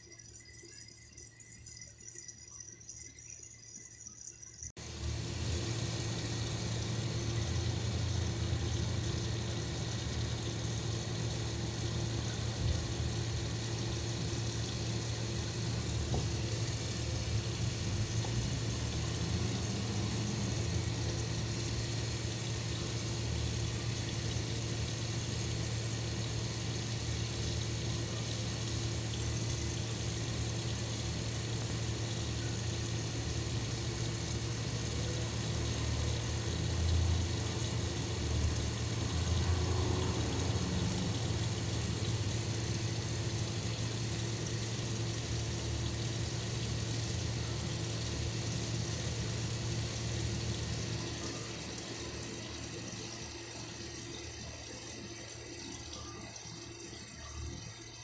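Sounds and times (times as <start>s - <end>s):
running water rushing: 4.8s - 53.1s
uneven water sound: 4.8s - 56.0s.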